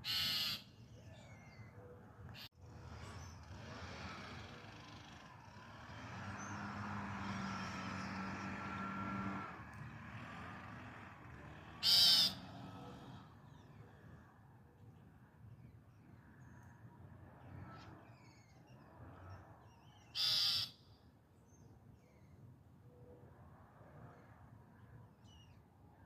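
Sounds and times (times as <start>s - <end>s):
harsh bird begging call: 0.0s - 0.8s, 11.8s - 12.6s, 20.1s - 20.9s
motor vehicle passing: 2.2s - 15.3s, 16.0s - 20.9s.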